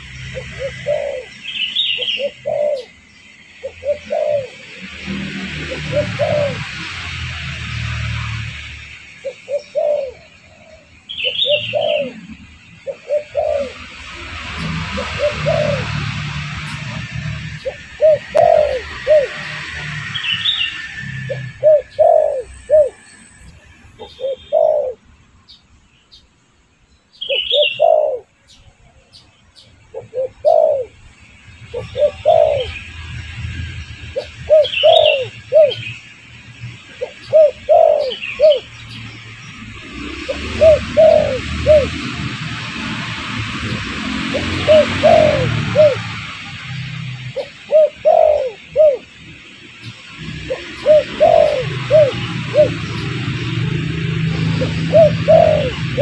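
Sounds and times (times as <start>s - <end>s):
doves cooing: 0.0s - 3.0s, 3.6s - 8.3s, 9.2s - 20.0s, 21.1s - 23.0s, 24.0s - 25.0s, 27.3s - 28.3s, 30.0s - 31.0s, 31.7s - 32.8s, 34.2s - 36.0s, 37.0s - 38.7s, 39.7s - 49.2s, 50.0s - 56.0s
bird chirps: 0.0s - 4.7s, 9.1s - 42.1s, 43.6s - 56.0s.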